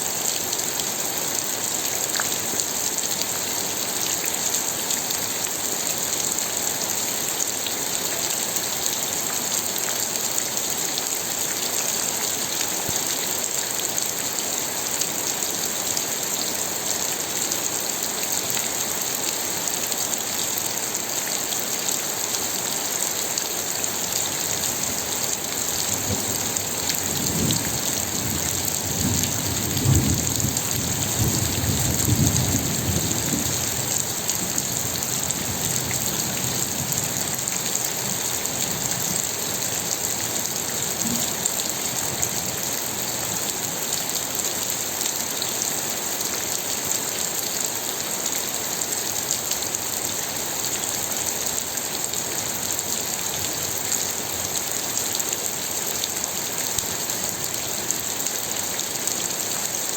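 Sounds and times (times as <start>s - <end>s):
rain falling: 0.0s - 59.9s
low rumble of thunder: 27.2s - 33.6s.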